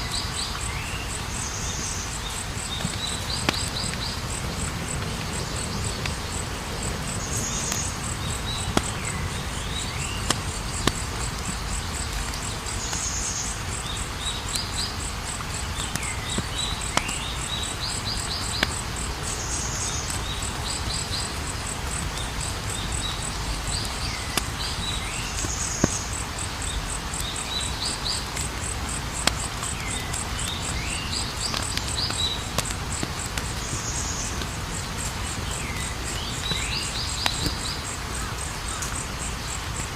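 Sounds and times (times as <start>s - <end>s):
campfire burning: 0.0s - 39.9s
crickets chirping: 0.0s - 39.9s
wood crackling and popping: 2.1s - 39.2s.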